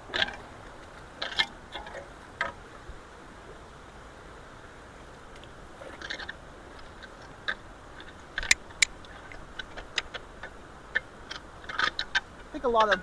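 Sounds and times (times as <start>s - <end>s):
creek water rushing through culverts: 0.0s - 13.0s
sharp clicks and knocks: 7.0s - 13.0s.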